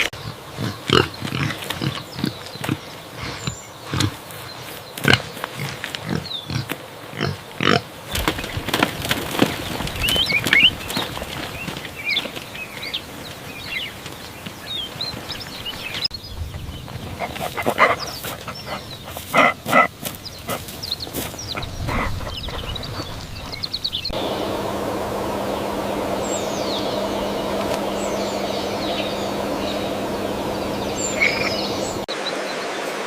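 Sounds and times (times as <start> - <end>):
birds chirping: 0.0 - 33.0
pigs grunting: 0.2 - 4.2, 5.0 - 8.0, 17.0 - 20.8, 21.4 - 23.5.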